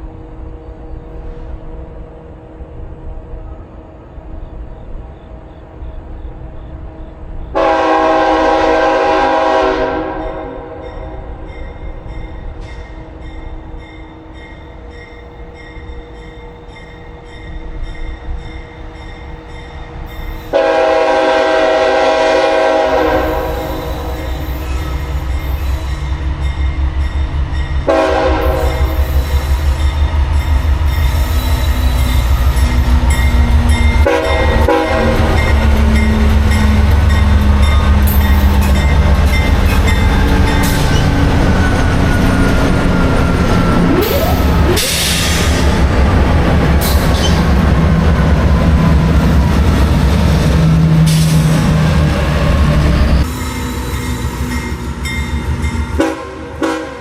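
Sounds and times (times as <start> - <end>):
locomotive horn blasts: 7.6 - 11.2, 20.5 - 24.3, 27.8 - 29.0, 34.0 - 35.8, 56.0 - 57.0.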